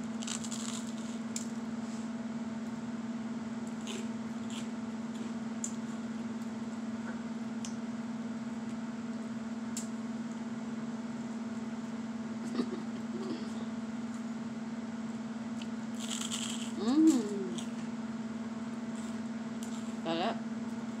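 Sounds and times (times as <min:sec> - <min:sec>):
crunchy toast being chewed: 0:00.0 - 0:01.5, 0:03.7 - 0:06.6, 0:15.5 - 0:17.8, 0:18.9 - 0:20.0
steady low hum: 0:00.0 - 0:21.0.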